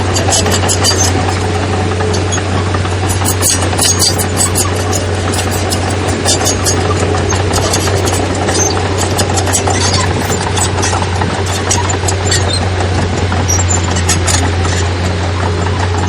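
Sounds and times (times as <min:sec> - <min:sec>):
diesel machinery droning: 0:00.0 - 0:16.0
sharp clicks and rattles: 0:00.0 - 0:16.0.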